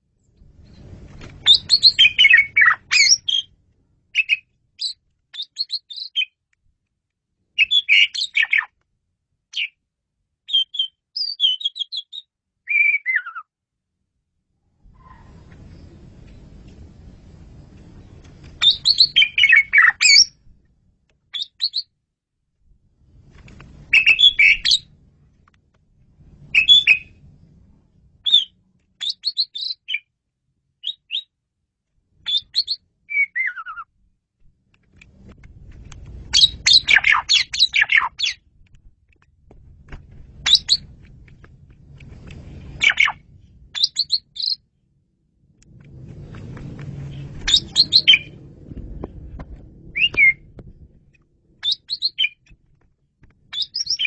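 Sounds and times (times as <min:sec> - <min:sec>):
starling chattering and whistling: 0:01.5 - 0:03.5, 0:18.6 - 0:20.3, 0:26.6 - 0:27.1, 0:40.5 - 0:40.8, 0:42.8 - 0:43.2, 0:43.8 - 0:44.6, 0:47.5 - 0:48.4, 0:50.0 - 0:50.4, 0:51.6 - 0:52.4, 0:53.6 - 0:54.0.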